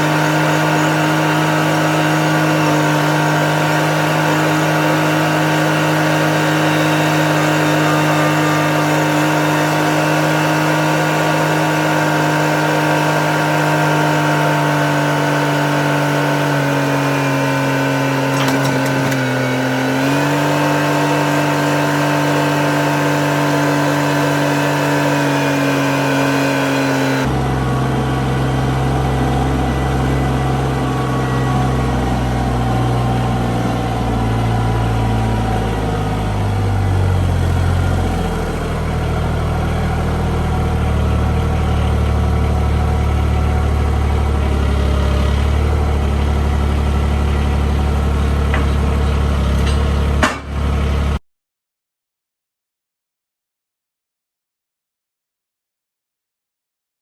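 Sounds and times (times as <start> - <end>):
tractor engine running: 0.0 - 51.2
deep rough engine rumble: 27.2 - 51.2.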